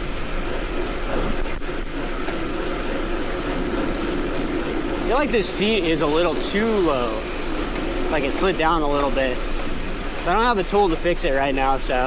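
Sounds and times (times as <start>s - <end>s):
bicycle tyre noise on road: 0.0s - 12.0s.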